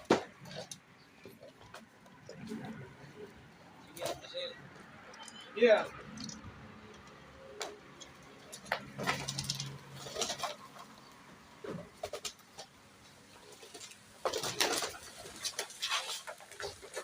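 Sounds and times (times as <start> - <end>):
pigeon wings flapping: 13.5 - 17.0.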